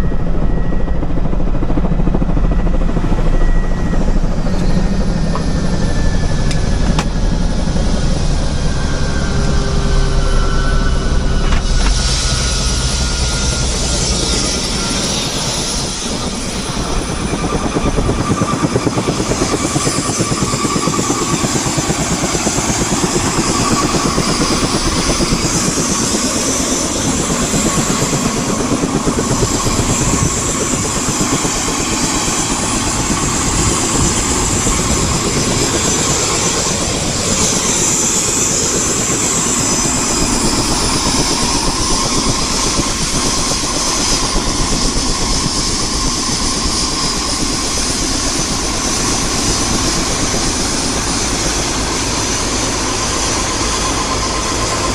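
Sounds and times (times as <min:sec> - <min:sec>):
helicopter engine: 0:00.0 - 0:54.9
helicopter rotor blades chopping: 0:00.0 - 0:54.9
rushing air: 0:04.2 - 0:54.9.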